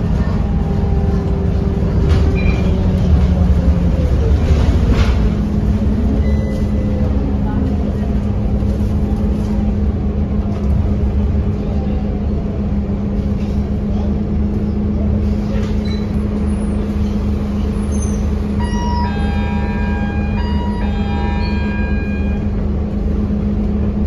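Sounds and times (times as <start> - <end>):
bus diesel engine running: 0.0 - 24.0.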